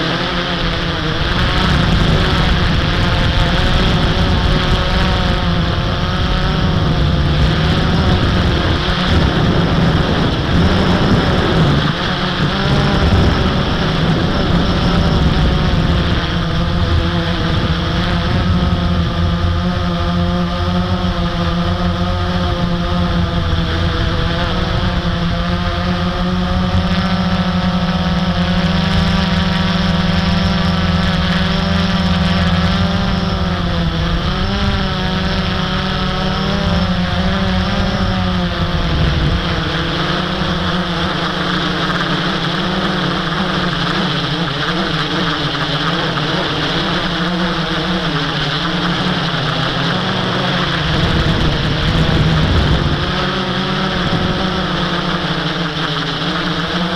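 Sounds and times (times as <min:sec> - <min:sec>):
quadcopter motors humming: 0:00.0 - 0:56.9.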